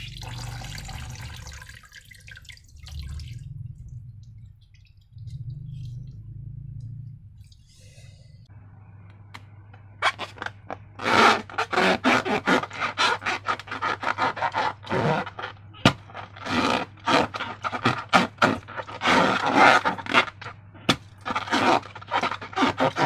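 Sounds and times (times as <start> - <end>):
faint steady hum: 0.0 - 11.6
rubbery scraping: 10.0 - 23.0.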